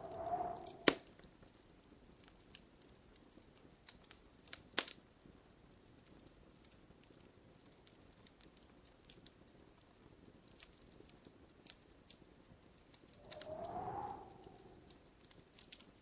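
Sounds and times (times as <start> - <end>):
wood fire crackling and popping: 0.0 - 16.0
low soft rumble: 13.2 - 14.9.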